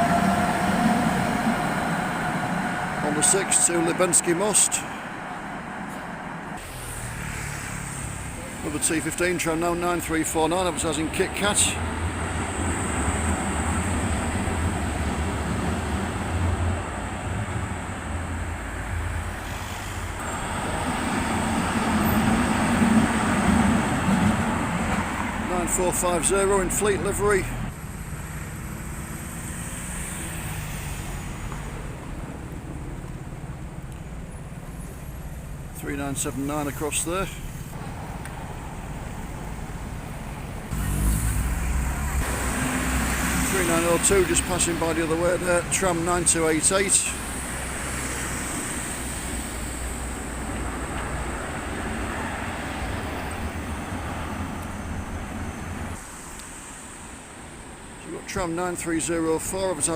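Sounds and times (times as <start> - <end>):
tram wheels rumbling on rails: 0.0 - 56.0
city street traffic: 0.0 - 59.9
low hum of engines: 0.0 - 59.9.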